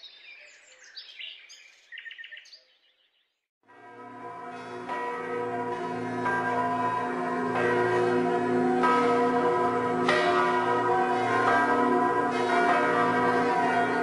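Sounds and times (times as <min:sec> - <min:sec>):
bells tolling: 0:03.7 - 0:14.0.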